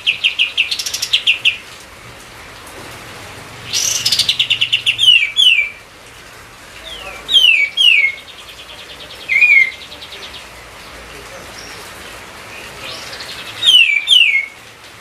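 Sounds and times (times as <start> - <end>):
bird singing trills and whistles: 0.0 - 1.6, 3.7 - 5.8, 6.8 - 10.5, 12.5 - 14.6.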